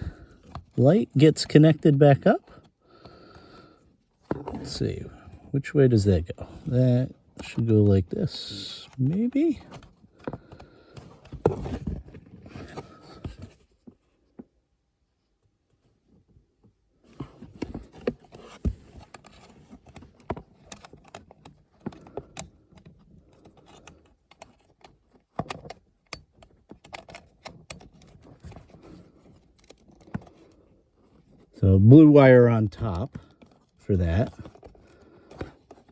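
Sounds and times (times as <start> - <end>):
plastic clicks taps and scrapes: 17.3 - 30.6.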